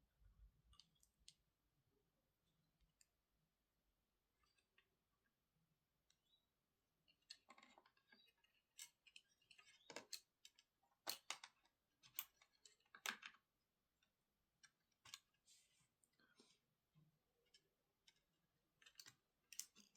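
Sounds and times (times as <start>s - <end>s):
small parts and tools clicking: 0.6s - 1.5s, 7.0s - 15.4s, 17.4s - 19.9s.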